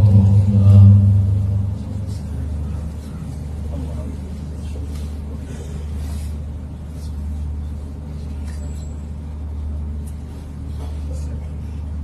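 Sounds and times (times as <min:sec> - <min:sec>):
low rumble: 0:00.0 - 0:03.7.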